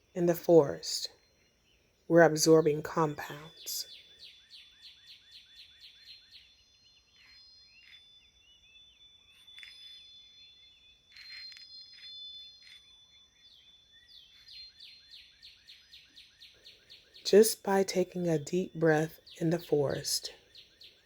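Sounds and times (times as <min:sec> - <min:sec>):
birds chirping: 0:00.0 - 0:21.0
bird's rapid repeated chirps: 0:03.4 - 0:17.2.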